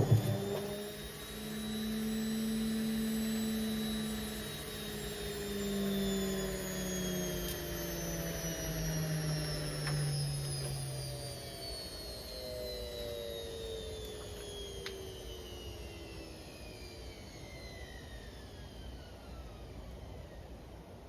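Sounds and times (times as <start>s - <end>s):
washing machine winding down: 0.0s - 1.0s.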